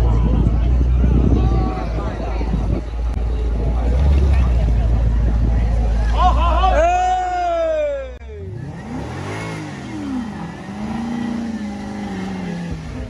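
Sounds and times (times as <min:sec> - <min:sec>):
sports car engine revving: 0:02.9 - 0:06.8, 0:08.3 - 0:13.0.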